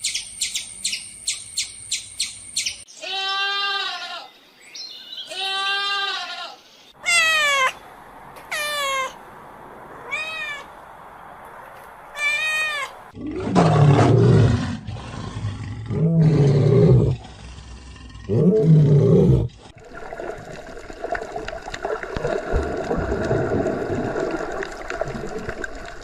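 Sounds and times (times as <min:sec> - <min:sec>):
bleat-like call: 0:03.0 - 0:04.3, 0:05.3 - 0:07.8, 0:08.5 - 0:09.2, 0:10.0 - 0:10.7, 0:12.1 - 0:12.9
cat meowing: 0:07.0 - 0:07.8, 0:08.4 - 0:09.2, 0:10.0 - 0:10.7, 0:12.1 - 0:12.9
big cat roaring: 0:13.2 - 0:19.6.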